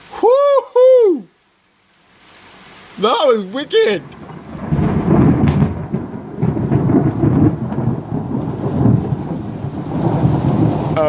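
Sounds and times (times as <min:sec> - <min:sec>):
steady rain: 0:00.0 - 0:11.0
thunder rumbling: 0:03.0 - 0:11.0.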